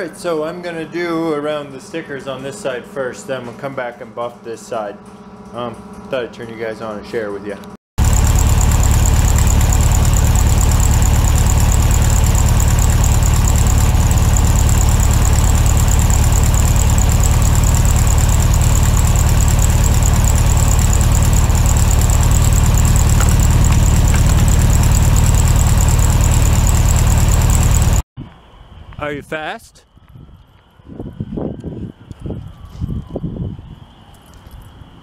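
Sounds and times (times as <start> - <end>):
electric buffer whining: 8.0 - 28.0.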